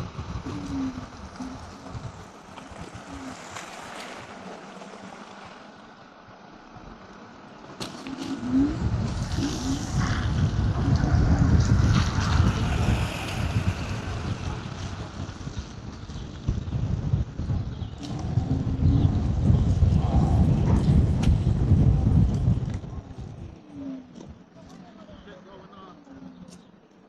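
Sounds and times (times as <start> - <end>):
wind buffeting microphone: 0.0 - 26.8.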